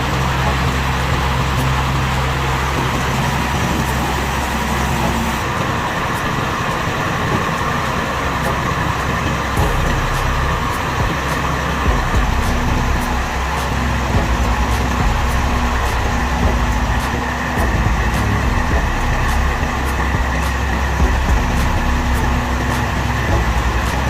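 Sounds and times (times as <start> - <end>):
broad engine rumble: 0.0 - 24.0
low engine hum: 0.0 - 24.0.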